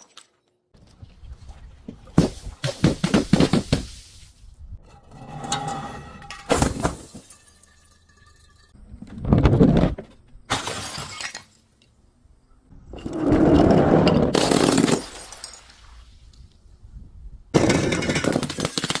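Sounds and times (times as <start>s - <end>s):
glass breaking and crunching: 6.2s - 8.8s, 10.5s - 11.6s.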